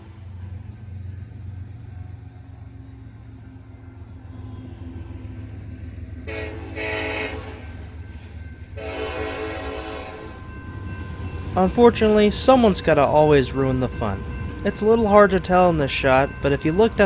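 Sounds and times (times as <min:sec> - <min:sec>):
diesel engine rumble: 0:00.0 - 0:17.0
locomotive air horn blasts: 0:06.2 - 0:08.0, 0:08.8 - 0:10.4.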